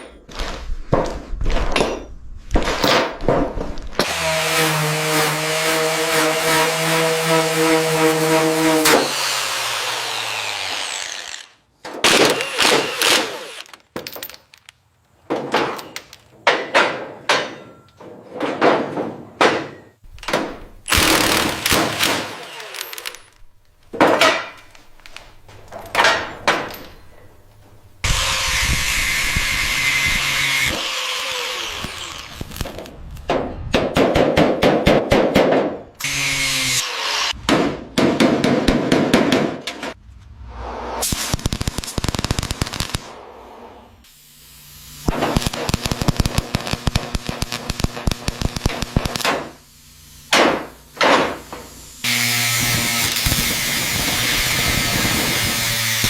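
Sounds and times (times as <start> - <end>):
power tool bursts: 4.0 - 13.7, 20.9 - 23.3.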